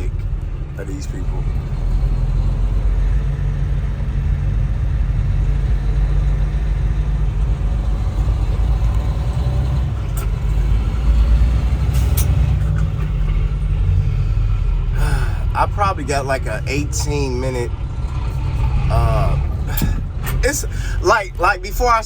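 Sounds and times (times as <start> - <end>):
road noise: 0.0 - 22.0
truck engine rumble: 0.0 - 22.0.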